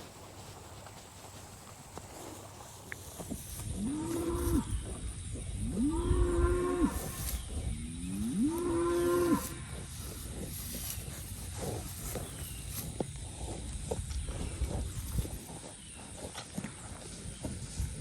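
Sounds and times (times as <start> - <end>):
cattle mooing: 8.1 - 9.7.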